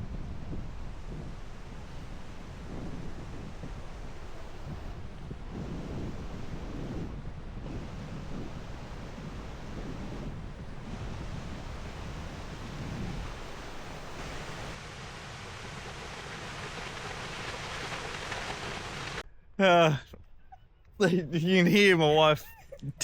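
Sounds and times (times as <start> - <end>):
wind buffeting microphone: 0.0 - 14.8
waterfall rushing: 11.7 - 19.2.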